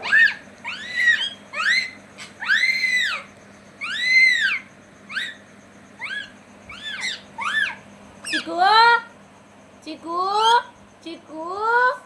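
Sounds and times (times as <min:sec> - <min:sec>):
parrot calling: 0:00.0 - 0:09.0, 0:10.3 - 0:10.7.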